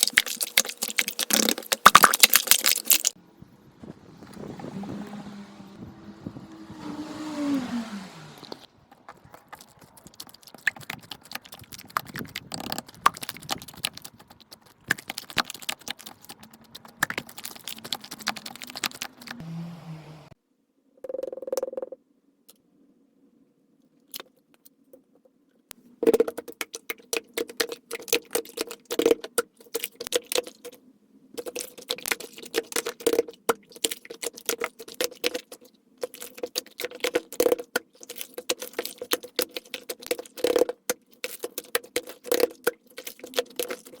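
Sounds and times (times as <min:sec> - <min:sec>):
small objects clicking and rustling: 0:00.0 - 0:03.2, 0:08.9 - 0:19.4, 0:31.4 - 0:44.0.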